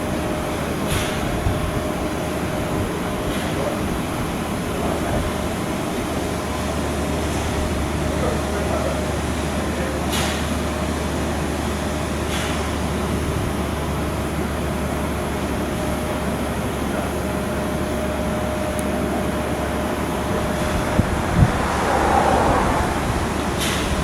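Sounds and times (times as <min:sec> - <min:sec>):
steady machinery noise: 0:11.2 - 0:24.0.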